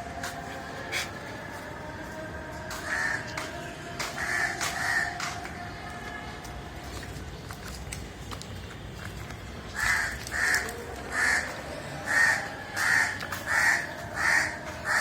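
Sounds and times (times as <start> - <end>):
crow cawing: 2.8 - 3.3, 4.2 - 5.2, 9.8 - 15.0.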